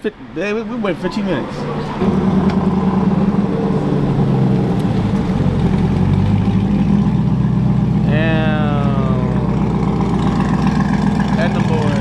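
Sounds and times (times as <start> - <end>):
car engine droning: 0.3 - 12.0.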